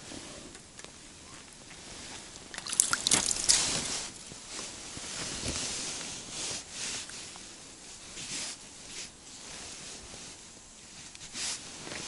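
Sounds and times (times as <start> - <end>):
rustling: 1.3 - 7.5
water splashing: 2.3 - 4.2.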